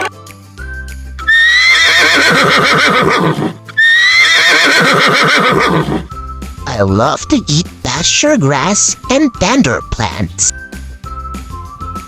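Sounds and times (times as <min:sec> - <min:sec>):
horse whinnying: 0:01.2 - 0:06.1.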